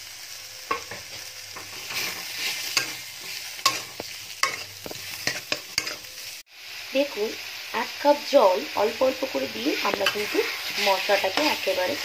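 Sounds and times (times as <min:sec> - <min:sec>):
food sizzling in oil: 0:00.0 - 0:12.0
utensil scraping a pan: 0:00.7 - 0:06.2, 0:09.6 - 0:12.0.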